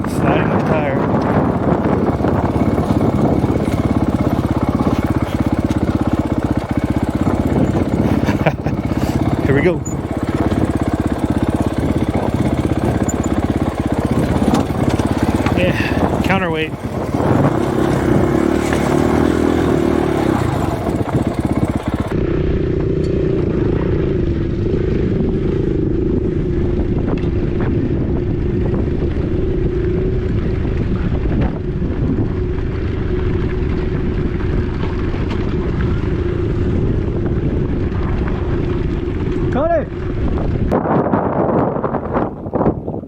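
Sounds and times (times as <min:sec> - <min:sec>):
dirt bike engine running: 0:00.0 - 0:43.0
wind buffeting microphone: 0:00.0 - 0:43.0.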